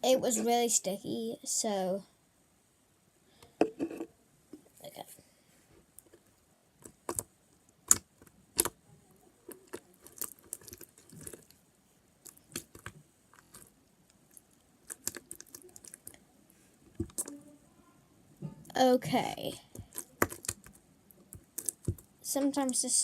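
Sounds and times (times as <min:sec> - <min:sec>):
slime kneaded by hand: 0:06.8 - 0:08.8, 0:09.4 - 0:11.6, 0:12.2 - 0:16.1, 0:19.4 - 0:22.8
wet clicks and small pops: 0:19.7 - 0:22.8.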